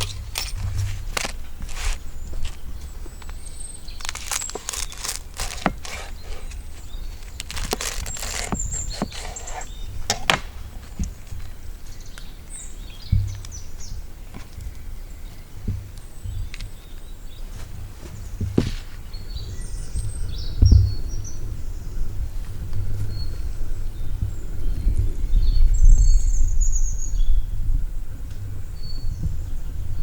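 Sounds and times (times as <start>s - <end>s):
rustles and knocks: 0.0s - 11.5s, 13.0s - 14.9s, 15.6s - 19.2s.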